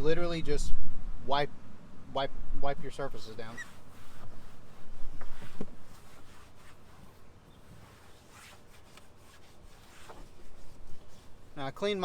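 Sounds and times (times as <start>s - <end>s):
cleaning wipe rubbing dashboard: 3.2s - 12.0s.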